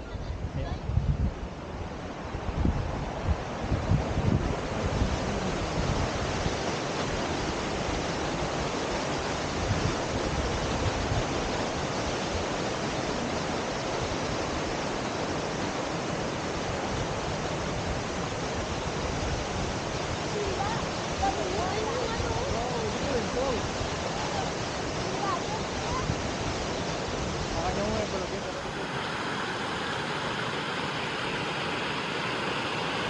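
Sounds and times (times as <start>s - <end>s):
waterfall rushing: 28.1s - 33.0s.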